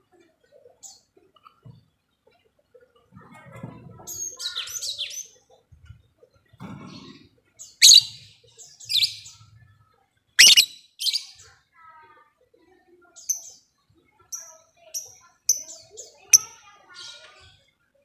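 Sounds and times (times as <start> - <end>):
loud sharp bird calls: 7.8 - 8.2, 10.4 - 11.3
lovebird chattering: 7.8 - 8.2, 10.4 - 11.3.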